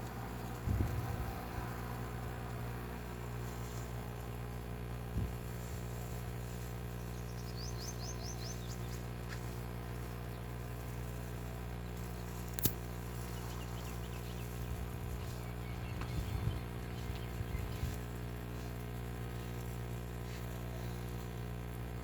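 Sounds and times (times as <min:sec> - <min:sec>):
electrical hum: 0:00.0 - 0:22.0
sharp click: 0:12.5 - 0:12.8.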